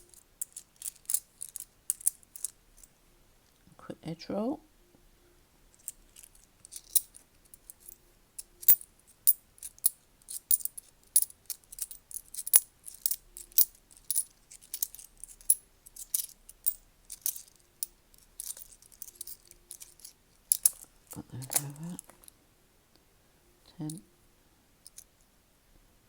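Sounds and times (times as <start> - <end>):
coins clinking: 0.0 - 2.9, 5.8 - 22.3.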